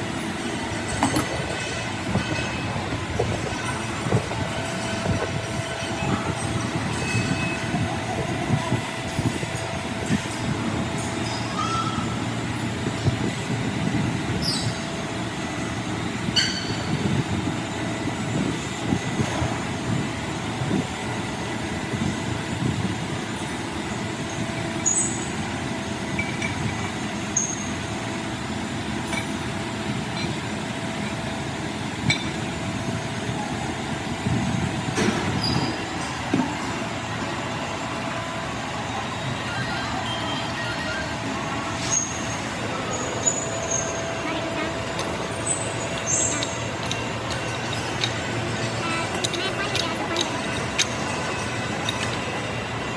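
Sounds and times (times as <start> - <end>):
heavy machinery rumble: 0.0 - 52.9
metallic pings and squeaks: 39.4 - 52.2.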